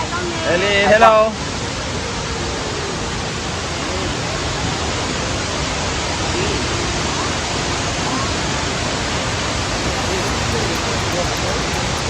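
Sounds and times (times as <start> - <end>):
waterfall rushing: 8.6 - 12.0.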